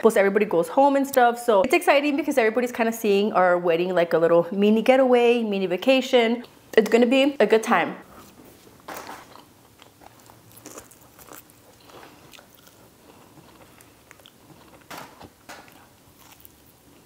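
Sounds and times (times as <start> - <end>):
quiet chewing: 9.0 - 17.0.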